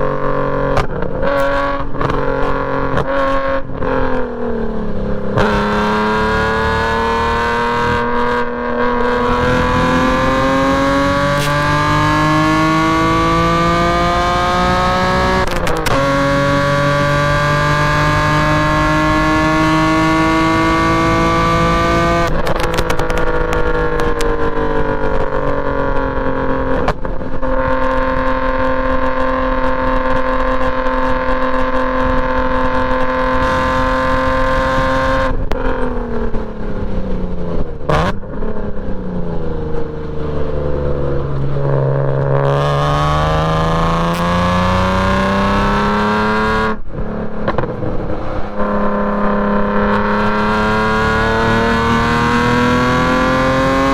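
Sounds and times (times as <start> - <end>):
car engine revving hard: 0.0 - 53.9.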